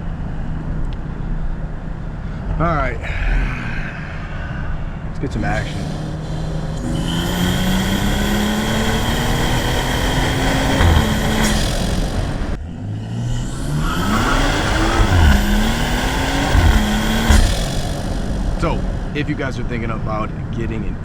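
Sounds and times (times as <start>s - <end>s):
car engine accelerating hard: 5.2s - 21.0s.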